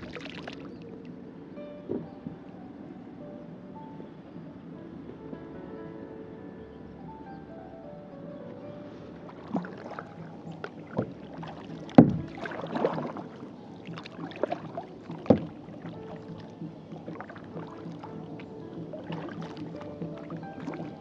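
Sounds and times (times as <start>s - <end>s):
kayak paddle splashing in water: 0.0s - 1.2s, 8.9s - 21.0s.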